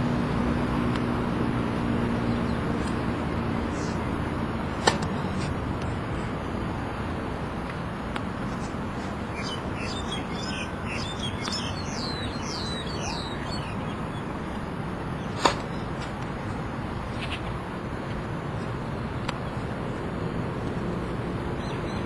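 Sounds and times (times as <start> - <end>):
steady background noise: 0.0 - 22.0
tennis ball impact: 4.7 - 5.5, 15.3 - 16.2
songbird chirping rapidly: 9.2 - 15.9.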